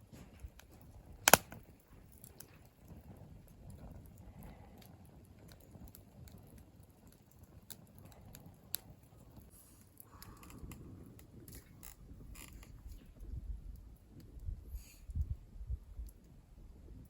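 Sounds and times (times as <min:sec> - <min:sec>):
small clicks and ticks: 0:01.3 - 0:13.1.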